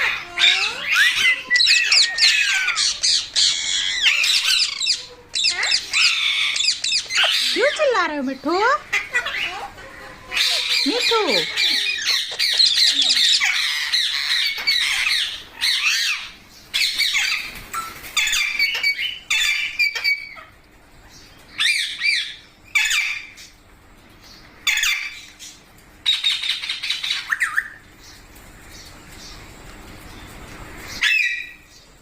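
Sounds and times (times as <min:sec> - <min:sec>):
parrot squawking: 0:00.0 - 0:17.5, 0:21.6 - 0:23.3, 0:31.0 - 0:31.6.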